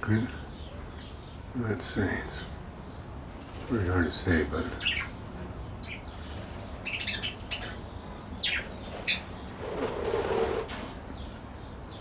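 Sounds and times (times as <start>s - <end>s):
parakeets chirping: 3.2s - 12.0s.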